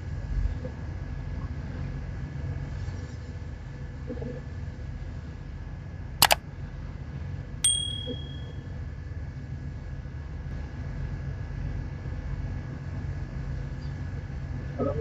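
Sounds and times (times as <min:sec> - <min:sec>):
sharp click with high ping: 0:07.7 - 0:08.5.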